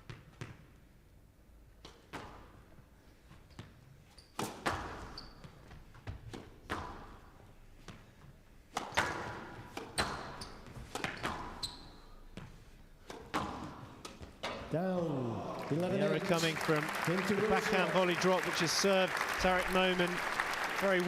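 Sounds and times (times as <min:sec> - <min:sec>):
shoes squeaking: 0:03.3 - 0:06.9, 0:07.6 - 0:14.8
squash ball cracking off walls: 0:08.7 - 0:11.6.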